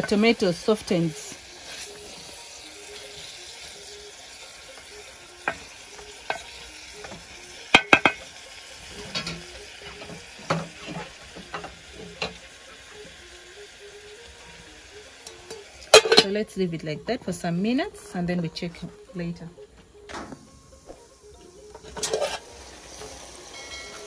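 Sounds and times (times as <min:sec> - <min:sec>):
vegetables and fish frying in oil: 0:00.0 - 0:16.6, 0:21.0 - 0:24.0
metal utensil scraping a pan: 0:08.9 - 0:12.5, 0:15.5 - 0:16.4, 0:21.8 - 0:22.7, 0:23.5 - 0:24.0.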